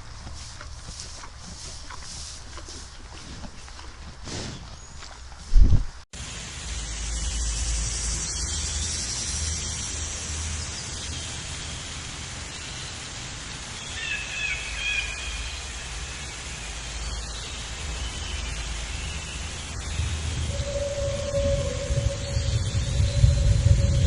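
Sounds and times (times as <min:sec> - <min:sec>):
wind on microphone: 0:05.4 - 0:06.0, 0:19.3 - 0:24.0.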